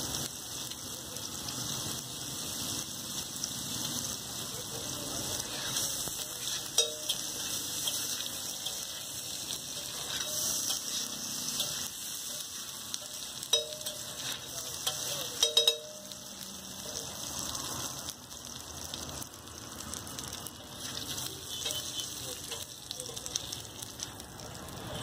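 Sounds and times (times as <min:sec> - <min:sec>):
eggs sizzling in oil: 0:00.0 - 0:25.0
metal spatula clinking on griddle: 0:05.4 - 0:16.5, 0:20.9 - 0:23.5.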